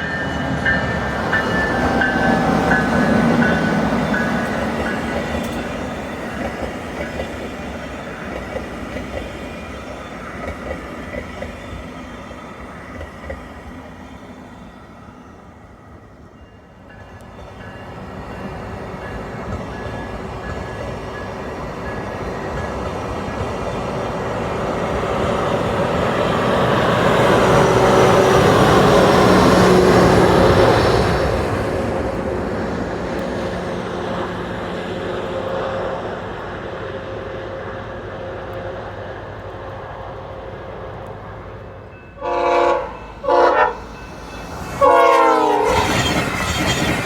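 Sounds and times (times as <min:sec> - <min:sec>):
passenger train passing at high speed: 0:00.0 - 0:47.0
train horn blasts: 0:42.2 - 0:43.9, 0:44.8 - 0:45.9.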